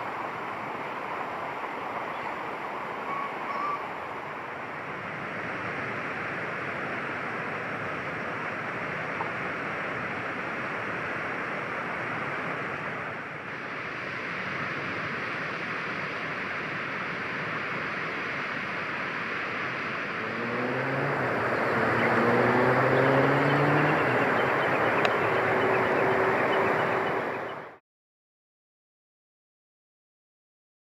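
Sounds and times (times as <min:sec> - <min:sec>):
steady rushing noise: 0:04.0 - 0:27.8
vehicle engine revving: 0:20.0 - 0:27.7.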